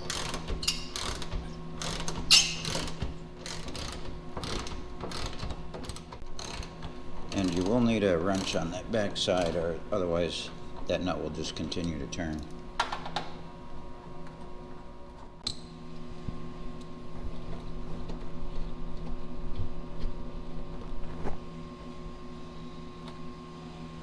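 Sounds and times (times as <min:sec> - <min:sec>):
wrenches working bolts: 0:00.0 - 0:08.7
steady mechanical hum: 0:00.0 - 0:24.0.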